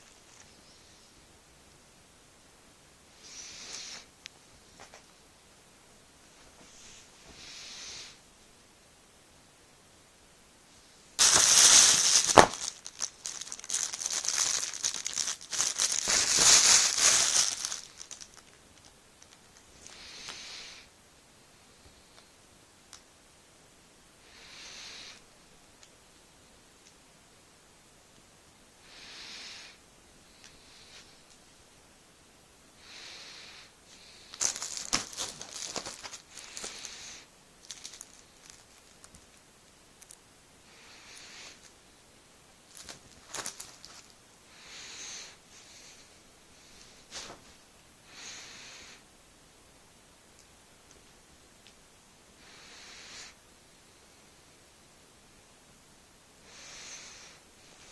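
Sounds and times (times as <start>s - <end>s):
faint hiss: 0.0s - 57.9s
plastic packaging crinkling: 11.2s - 20.4s, 34.3s - 40.2s, 42.7s - 44.2s.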